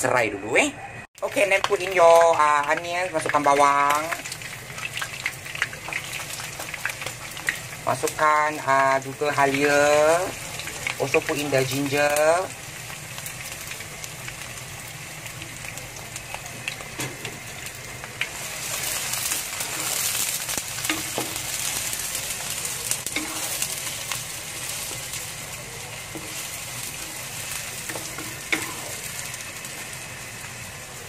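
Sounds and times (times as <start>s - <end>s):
food sizzling in hot oil: 1.2s - 31.0s
utensil clicking against a pan: 27.9s - 28.9s.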